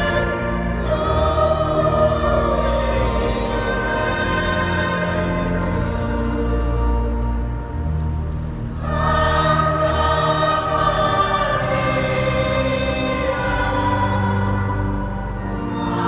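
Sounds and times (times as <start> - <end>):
choir singing: 0.0 - 16.0
low organ chords: 0.0 - 16.0.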